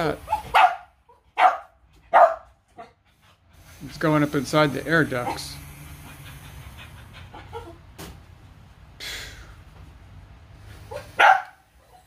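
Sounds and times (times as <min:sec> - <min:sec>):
dog barking: 0:00.2 - 0:03.0, 0:10.9 - 0:12.0
dog panting and sniffing: 0:01.8 - 0:08.0.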